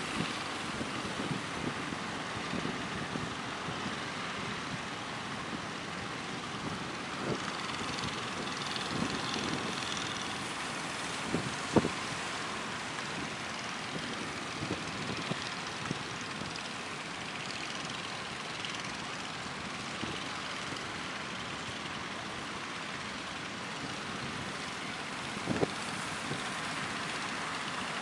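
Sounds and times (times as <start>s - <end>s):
strong wind: 0.0s - 16.7s, 25.2s - 26.9s.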